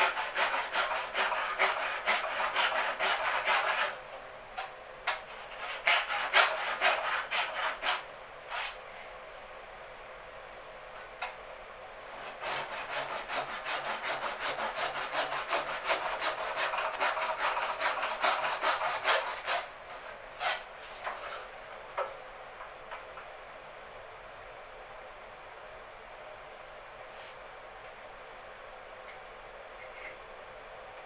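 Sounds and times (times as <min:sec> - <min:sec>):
hand saw cutting wood: 0:00.0 - 0:04.0, 0:05.1 - 0:08.8, 0:12.2 - 0:21.5.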